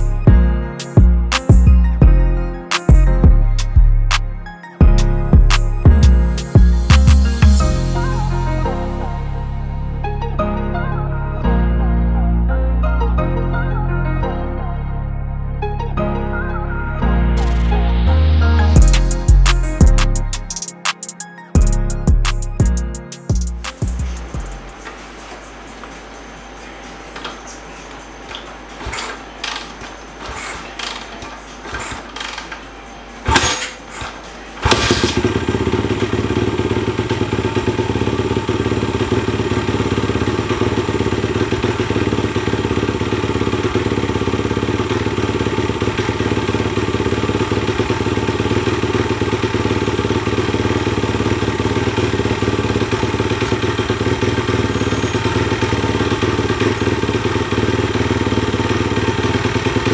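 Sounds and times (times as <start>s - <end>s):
motorcycle engine running: 0.0s - 2.2s, 4.8s - 9.4s, 21.3s - 59.9s.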